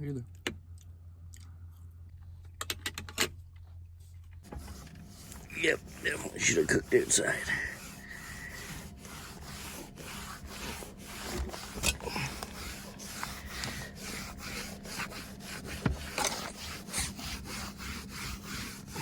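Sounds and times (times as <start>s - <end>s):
scraping and rubbing: 4.4s - 19.0s.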